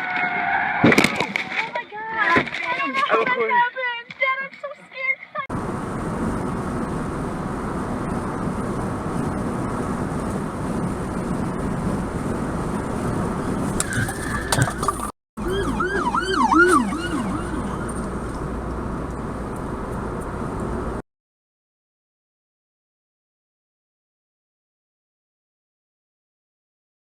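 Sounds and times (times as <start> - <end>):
car road and engine noise: 5.0 - 21.0
emergency siren wailing: 13.5 - 18.7.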